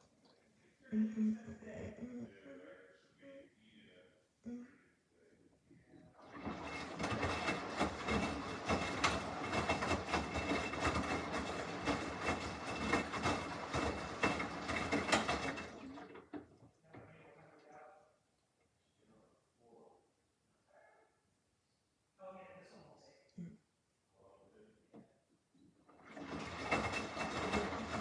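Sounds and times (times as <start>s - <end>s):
washing machine drum churning: 6.2s - 16.6s, 25.9s - 28.0s.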